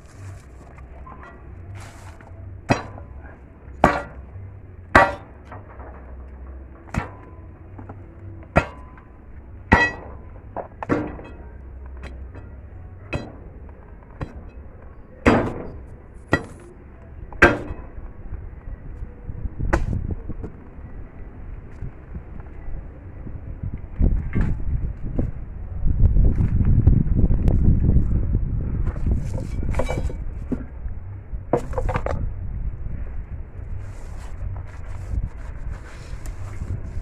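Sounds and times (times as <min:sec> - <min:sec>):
metal striking stone: 0:02.7 - 0:03.2, 0:03.8 - 0:04.3, 0:05.0 - 0:06.1, 0:09.7 - 0:11.4, 0:13.1 - 0:13.5, 0:15.3 - 0:16.7, 0:17.4 - 0:18.0.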